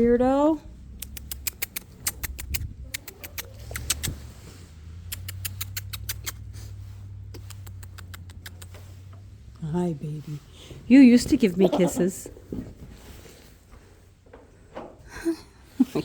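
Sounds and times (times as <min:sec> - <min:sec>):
goat chewing clicks and crunches: 0:01.0 - 0:04.2, 0:07.4 - 0:08.9.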